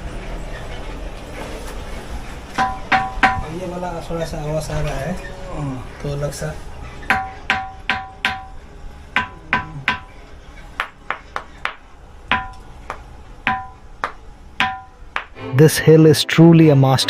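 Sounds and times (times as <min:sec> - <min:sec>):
ringing rock being struck: 0:02.6 - 0:03.5, 0:07.1 - 0:08.6, 0:09.2 - 0:10.2, 0:10.8 - 0:15.4.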